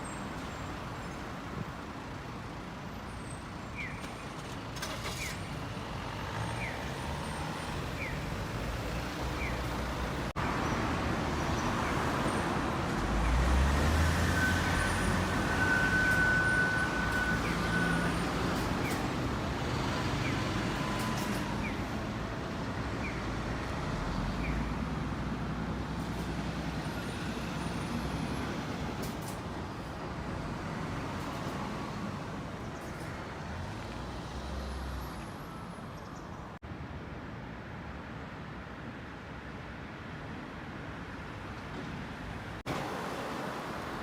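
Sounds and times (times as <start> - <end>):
passing cars and buses: 0.0 - 44.0.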